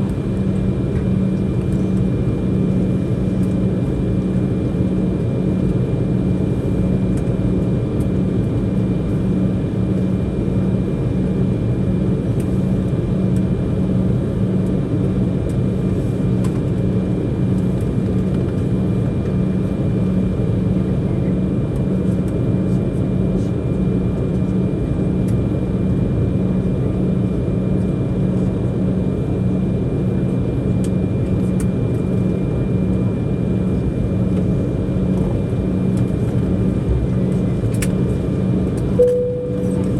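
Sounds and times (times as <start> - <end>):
airliner cabin hum: 0.0 - 39.9
faint high whine: 39.0 - 39.9.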